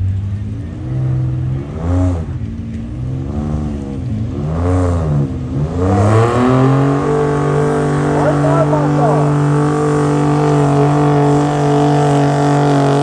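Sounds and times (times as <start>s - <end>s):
pickup truck engine revving: 3.0s - 13.0s.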